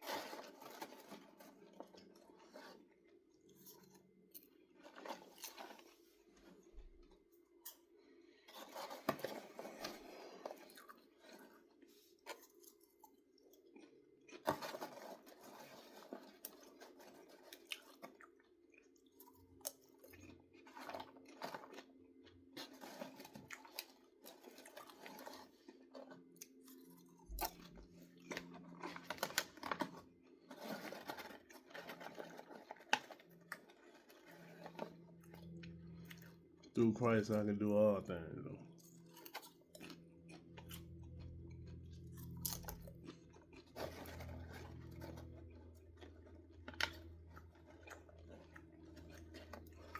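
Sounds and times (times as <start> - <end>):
person chewing popcorn: 0.0 - 37.6, 38.6 - 49.9
steady low hum: 40.0 - 45.8.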